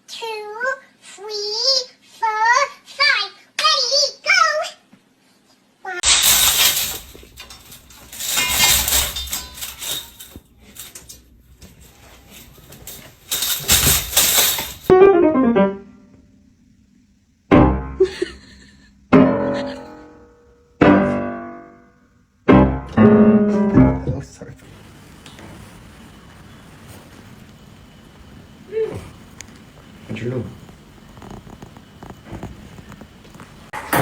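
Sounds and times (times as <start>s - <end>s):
rustling and clattering: 6.0s - 14.9s, 24.6s - 34.0s
piano notes and chords: 14.9s - 16.2s, 17.5s - 18.0s, 19.1s - 21.8s, 22.5s - 24.3s.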